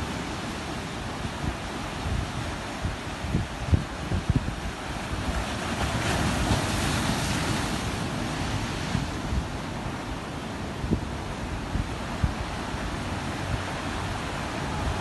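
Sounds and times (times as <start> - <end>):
ocean waves breaking: 0.0 - 15.0
wind buffeting microphone: 0.0 - 15.0.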